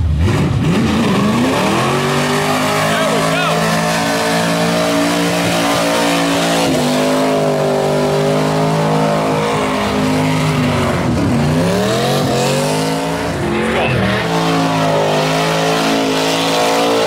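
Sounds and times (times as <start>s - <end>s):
car engine revving high: 0.0s - 17.0s
tyres screeching: 1.4s - 17.0s.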